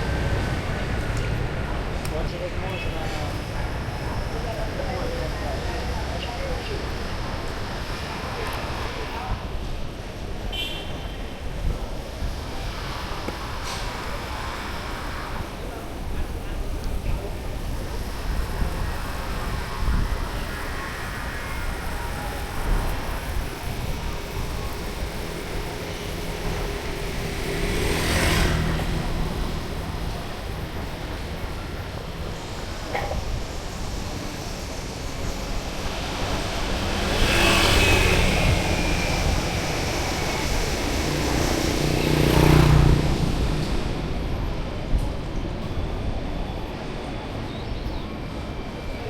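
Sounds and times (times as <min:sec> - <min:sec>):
street traffic rumble: 0:00.0 - 0:49.0
motor vehicle passing: 0:24.4 - 0:30.9, 0:35.9 - 0:44.2.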